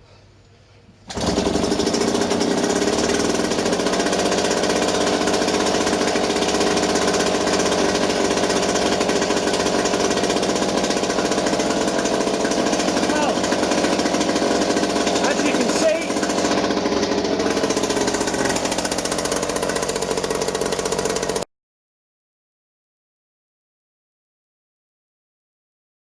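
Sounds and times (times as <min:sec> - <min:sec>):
outboard motor starting and running: 0:01.0 - 0:21.5.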